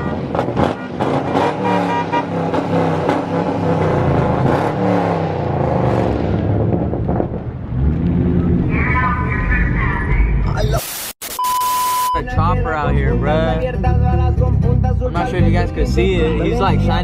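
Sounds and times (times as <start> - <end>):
car engine revving through gears: 0.3 - 8.5.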